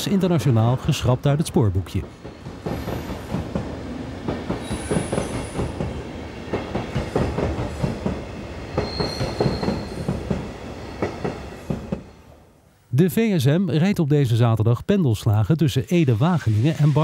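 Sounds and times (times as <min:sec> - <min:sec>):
train wheels clacking over rail joints: 0:02.0 - 0:12.1
high wheel squeal: 0:08.8 - 0:10.1.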